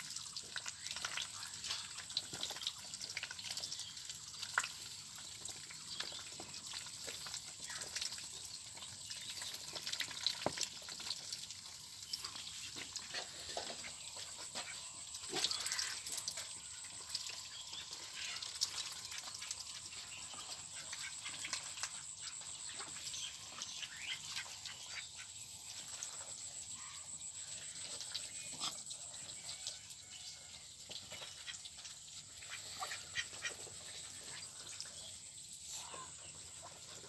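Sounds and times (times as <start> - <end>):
ducks quacking: 32.4 - 34.4.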